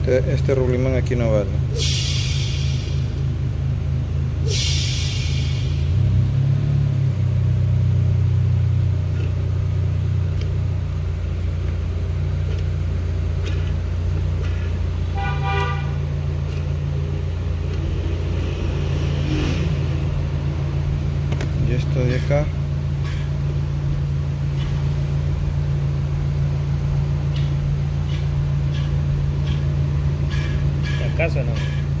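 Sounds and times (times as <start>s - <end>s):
low mechanical hum: 0.0s - 32.0s
burst of hissing: 1.7s - 3.3s, 4.4s - 6.2s
horn-like tone: 15.0s - 16.2s.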